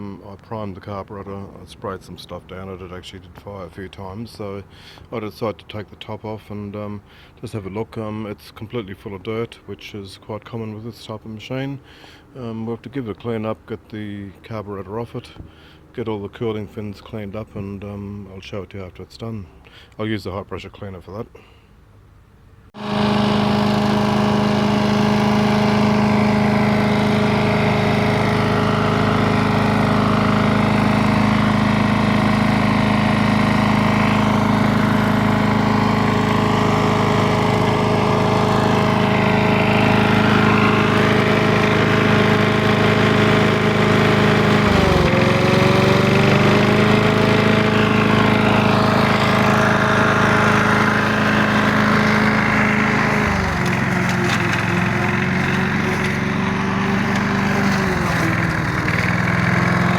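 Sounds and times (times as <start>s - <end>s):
motor humming: 22.8s - 59.9s.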